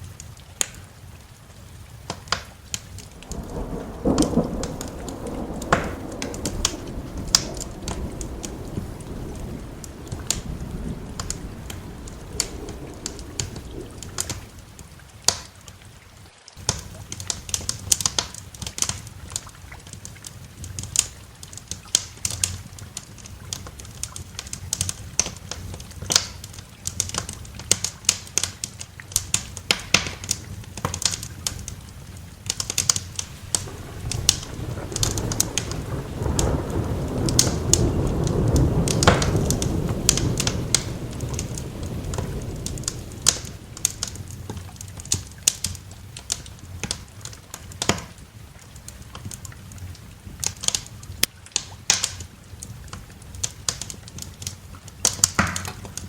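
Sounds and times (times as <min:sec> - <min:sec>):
steady rain: 0:00.0 - 0:56.0
wood fire crackling: 0:00.0 - 0:56.0
low thunder rumble: 0:03.0 - 0:15.3, 0:33.1 - 0:46.8.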